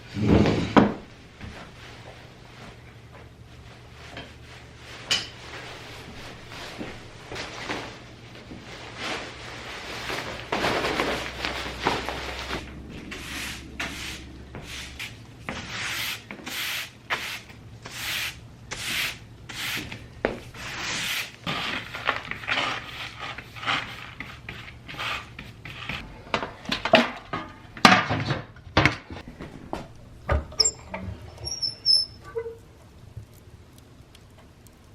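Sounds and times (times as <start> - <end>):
scraping and rubbing strokes: 8.8 - 26.0.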